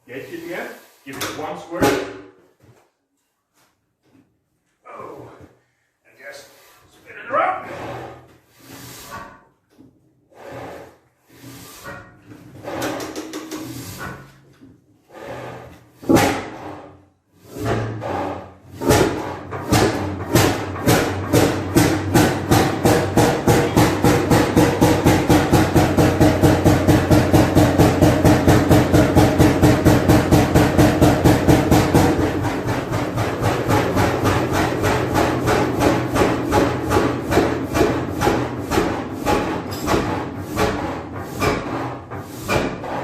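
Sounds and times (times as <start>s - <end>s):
oil engine puffing and knocking: 10.4s - 14.4s, 17.4s - 43.0s.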